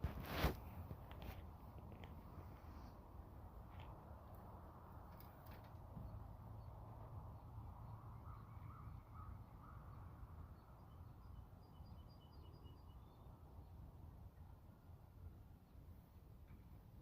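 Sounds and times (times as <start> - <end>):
bird calls: 7.9 - 13.3.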